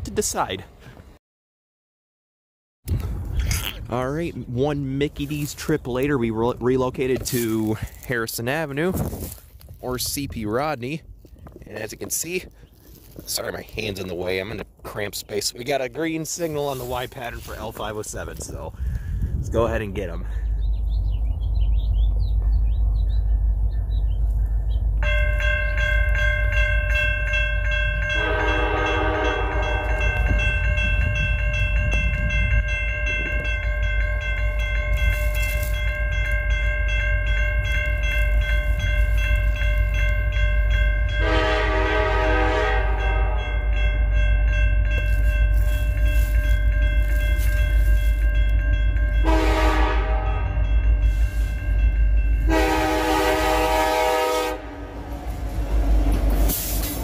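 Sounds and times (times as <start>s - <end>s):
low train rumble: 2.9s - 57.0s
crossing warning bell ringing: 24.9s - 57.0s
locomotive horn blasts: 28.1s - 30.5s, 41.2s - 43.8s, 49.2s - 50.7s, 52.4s - 56.8s.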